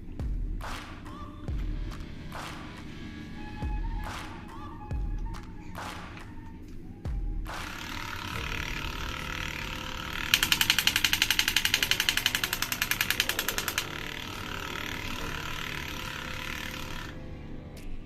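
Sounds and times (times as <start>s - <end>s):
fast rattling burst: 7.5s - 17.2s
electronic toy hiss: 7.6s - 17.1s.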